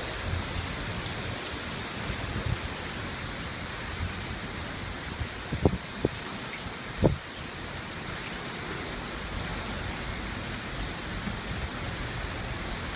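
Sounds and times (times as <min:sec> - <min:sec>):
wind and rain rushing: 0:00.0 - 0:12.9
wind buffeting microphone: 0:00.1 - 0:06.3, 0:06.9 - 0:07.3.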